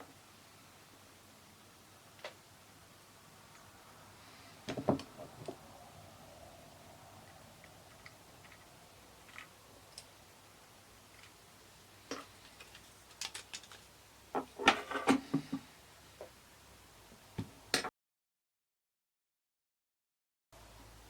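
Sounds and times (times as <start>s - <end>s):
small parts clicking and tapping: 7.2s - 10.2s, 11.1s - 11.4s, 12.1s - 13.9s.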